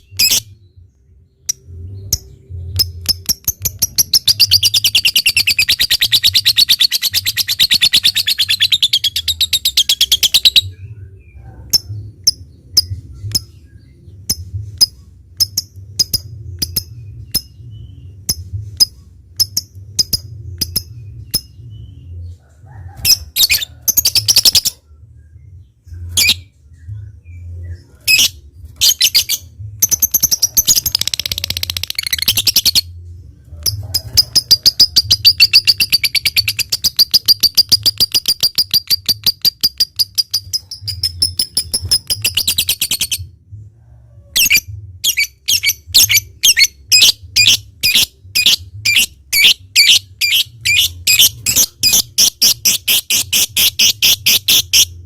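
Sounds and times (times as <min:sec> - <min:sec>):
bird chattering trill: 0:02.8 - 0:10.6, 0:44.4 - 0:55.0
bird clicking chirps: 0:35.3 - 0:43.1.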